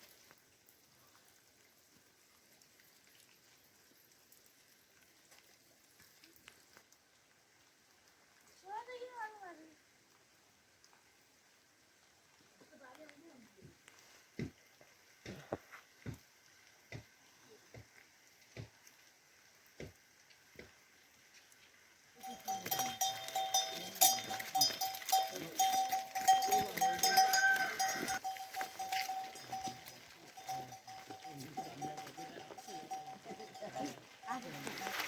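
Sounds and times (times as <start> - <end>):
bells ringing and clanking: 22.2 - 34.6
livestock sounds: 22.2 - 35.0.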